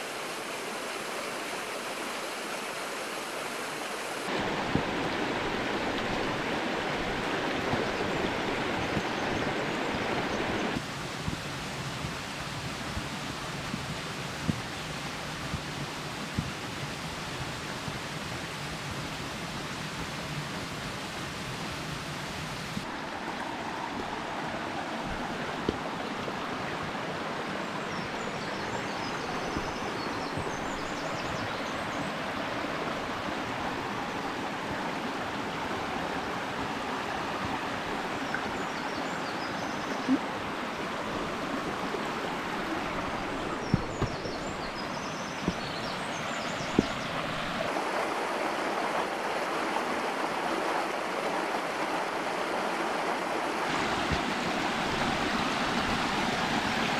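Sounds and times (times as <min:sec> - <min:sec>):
stream rushing over rocks: 0:00.0 - 0:56.9
sharp knocks: 0:43.7 - 0:44.4.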